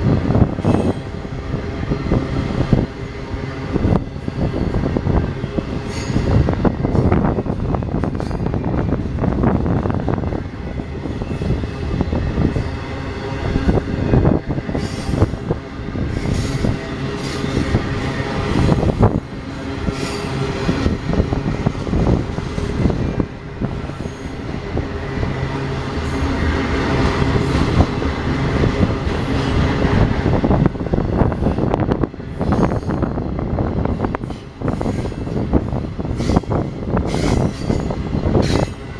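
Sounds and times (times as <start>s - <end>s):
train wheels on rails: 0.0s - 38.9s
high wheel flange squeal: 5.4s - 6.6s, 19.6s - 21.0s.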